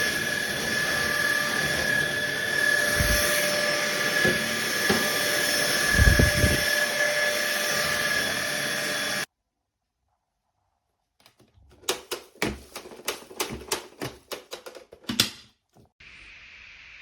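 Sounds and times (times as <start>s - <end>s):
stick vacuum motor whining: 0.0s - 9.3s.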